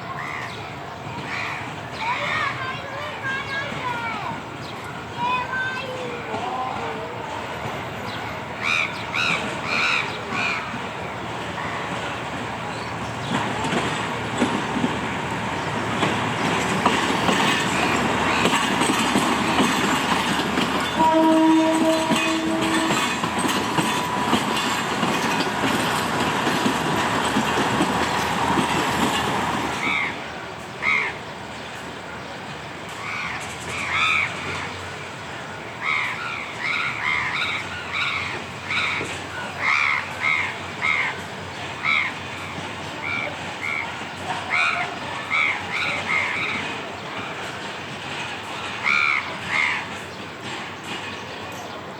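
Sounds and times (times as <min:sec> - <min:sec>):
train wheels clattering over rail joints: 0:08.8 - 0:51.9
train horn: 0:20.8 - 0:23.3.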